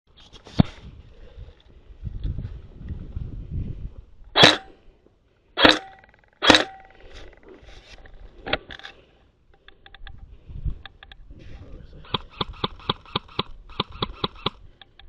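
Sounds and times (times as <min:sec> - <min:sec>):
airsoft gun shots: 0:04.4 - 0:04.8, 0:05.6 - 0:06.9.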